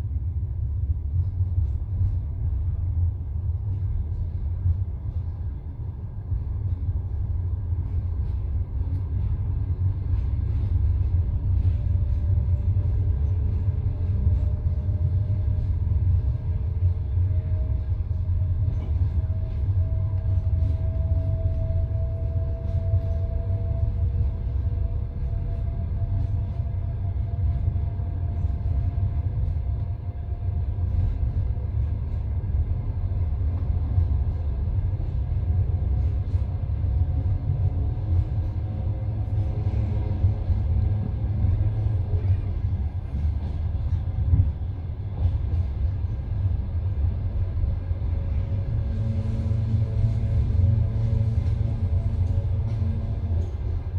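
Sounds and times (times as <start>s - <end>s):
train rumble inside carriage: 0.0s - 53.9s.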